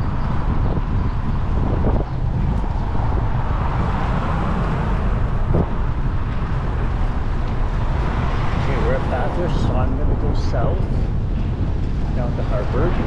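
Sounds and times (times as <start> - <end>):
passing street traffic: 0.0 - 13.0
wind rumble on microphone: 0.0 - 13.0.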